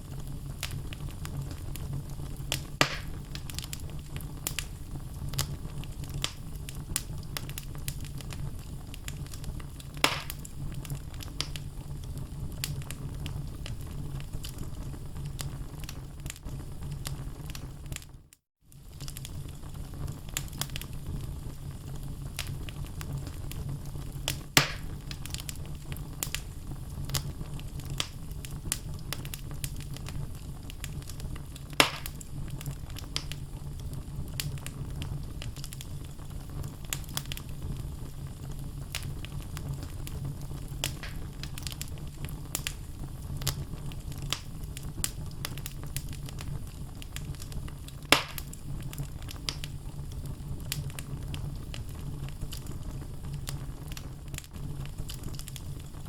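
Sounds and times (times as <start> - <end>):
fire crackling in fireplace: 0.0 - 56.0
logs popping: 2.5 - 3.8, 10.0 - 10.5, 24.6 - 25.4, 31.7 - 32.2, 40.8 - 41.8, 48.1 - 48.6.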